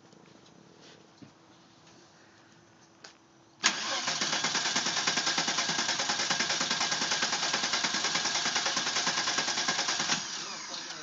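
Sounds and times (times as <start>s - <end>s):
car engine starting and pulsing: 3.6s - 11.0s.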